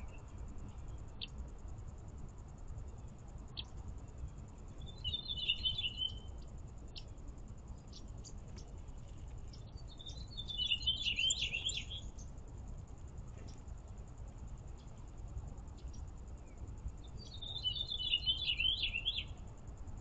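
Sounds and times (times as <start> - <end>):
small songbird twittering: 3.6 - 3.8, 4.7 - 7.2, 7.8 - 8.7, 9.4 - 12.3, 15.8 - 19.4.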